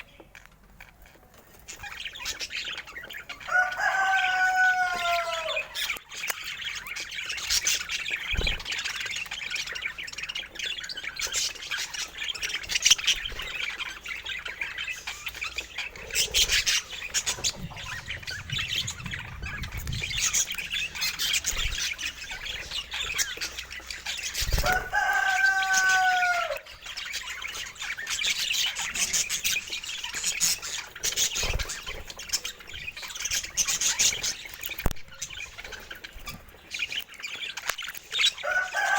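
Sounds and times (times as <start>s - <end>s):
budgerigars chattering: 1.7s - 38.9s.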